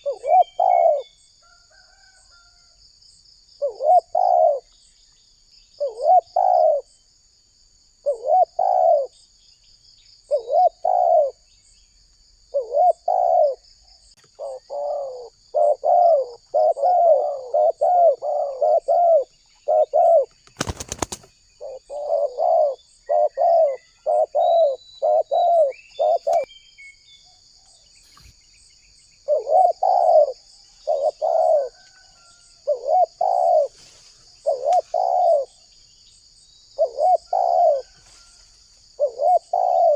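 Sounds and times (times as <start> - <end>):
dove cooing: 0.0 - 2.2, 3.6 - 4.8, 5.8 - 6.9, 8.0 - 9.2, 10.3 - 11.4, 12.5 - 13.6, 14.2 - 26.5, 29.2 - 35.7, 36.8 - 38.2, 38.9 - 39.9.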